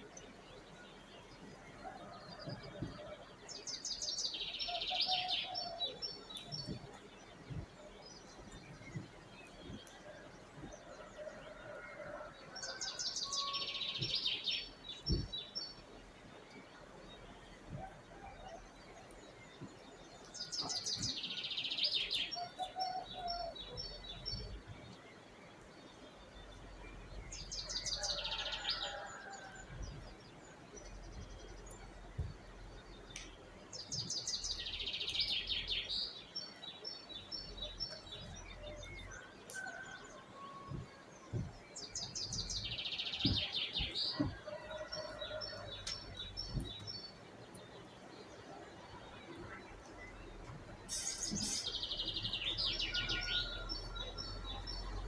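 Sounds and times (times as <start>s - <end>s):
songbird trilling song: 0.0s - 11.0s, 12.6s - 55.0s
faint calls of other birds: 0.0s - 15.8s, 16.5s - 55.0s.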